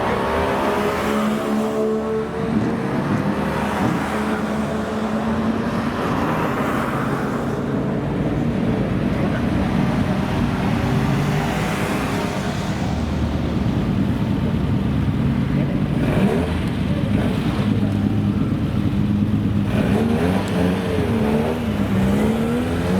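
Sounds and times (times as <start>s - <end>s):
road noise: 0.0s - 22.9s.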